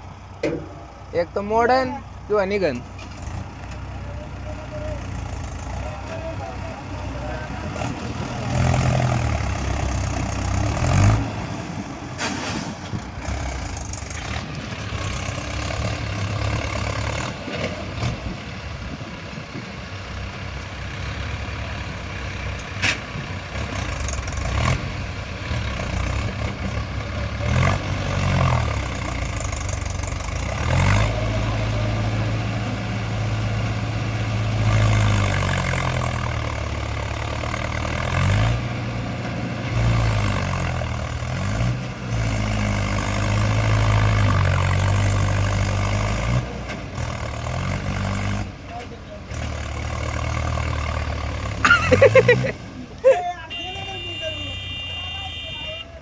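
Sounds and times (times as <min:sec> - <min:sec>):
tractor diesel engine revving: 0:00.0 - 0:56.0.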